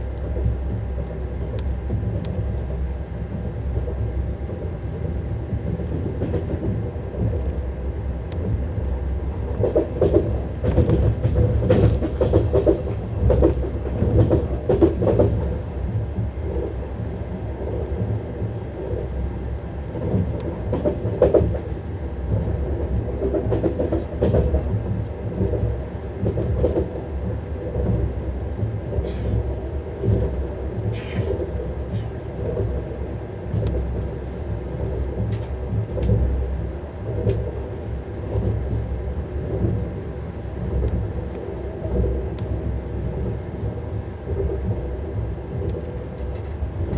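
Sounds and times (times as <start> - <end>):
train wheels rumbling on rails: 0.0 - 46.9
clicks over rail joints: 8.2 - 16.8, 19.9 - 29.4.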